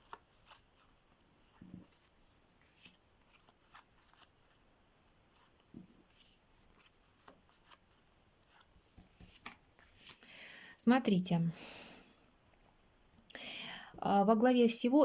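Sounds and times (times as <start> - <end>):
playing cards clicking and rustling: 0.0 - 4.4, 5.4 - 10.2.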